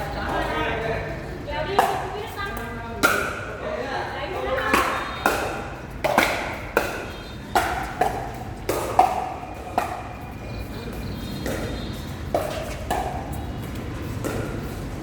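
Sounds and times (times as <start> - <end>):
paddles striking plastic ball: 4.8 - 10.1.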